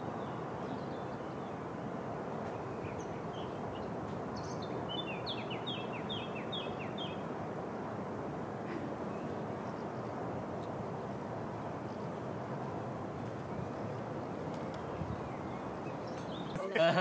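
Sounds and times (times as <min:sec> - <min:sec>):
songbird singing: 0:00.0 - 0:07.4, 0:09.0 - 0:10.2, 0:13.4 - 0:17.0.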